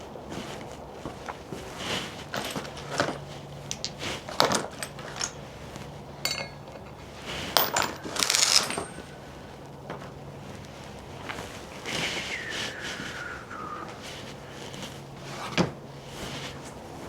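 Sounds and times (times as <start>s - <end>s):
metal hand tools clattering: 2.2s - 5.5s, 6.2s - 9.3s
short metallic ring: 6.2s - 6.9s.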